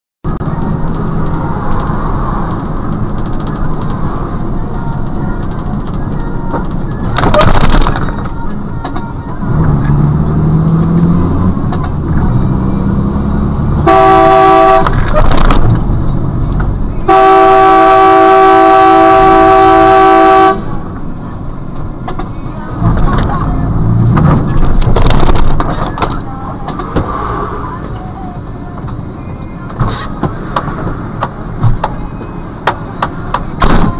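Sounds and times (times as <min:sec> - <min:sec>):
road and engine noise: 0:00.2 - 0:33.9
vehicle horn blasts: 0:13.8 - 0:15.1, 0:17.0 - 0:20.8.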